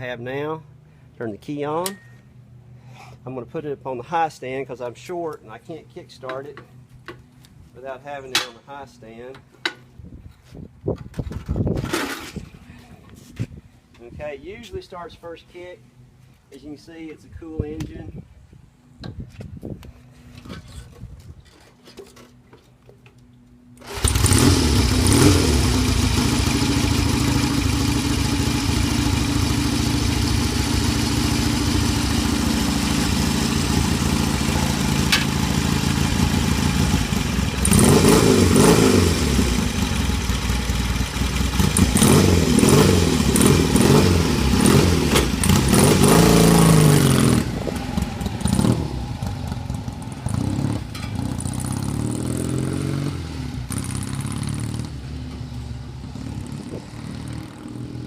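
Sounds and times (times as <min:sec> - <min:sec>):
motorcycle engine kick-started: 0:11.1 - 0:12.6, 0:23.8 - 0:52.5
motorcycle engine revving: 0:23.8 - 0:58.0.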